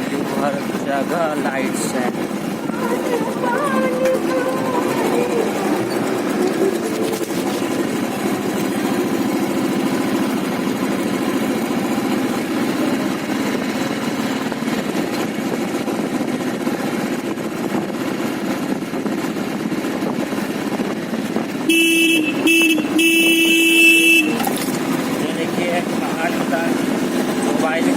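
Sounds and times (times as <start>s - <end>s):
motorcycle engine: 0.0s - 27.9s
road noise: 0.0s - 27.9s
vehicle horn honking: 21.6s - 24.7s.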